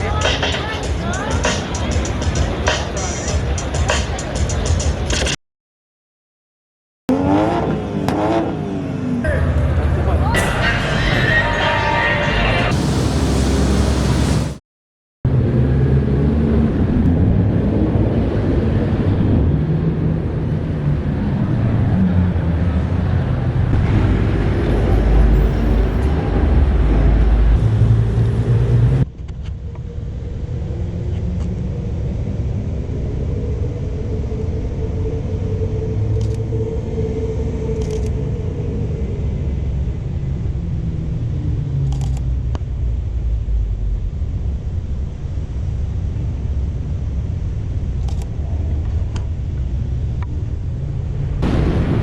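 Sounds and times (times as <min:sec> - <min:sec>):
car engines rumbling: 0:07.1 - 0:14.6, 0:15.3 - 0:52.0.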